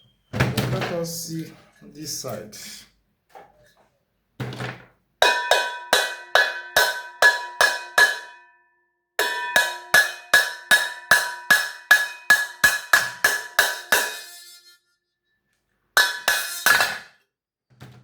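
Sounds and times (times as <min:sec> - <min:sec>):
cowbell-like percussive beat: 0:05.2 - 0:08.4, 0:09.2 - 0:14.6.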